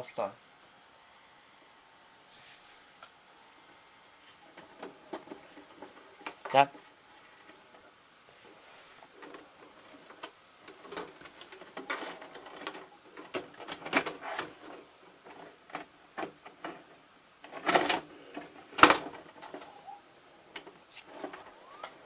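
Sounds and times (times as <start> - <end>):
tape transport clicking and rattling: 4.4 - 22.0.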